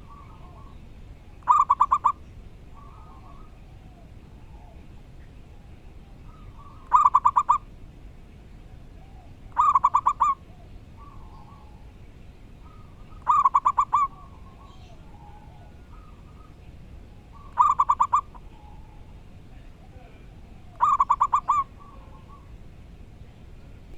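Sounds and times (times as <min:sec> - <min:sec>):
faint bird calls: 0:00.0 - 0:07.8, 0:08.5 - 0:23.0
dove cooing: 0:01.4 - 0:02.2, 0:02.8 - 0:04.8, 0:06.2 - 0:07.7, 0:09.0 - 0:11.8, 0:12.6 - 0:16.6, 0:17.3 - 0:22.6.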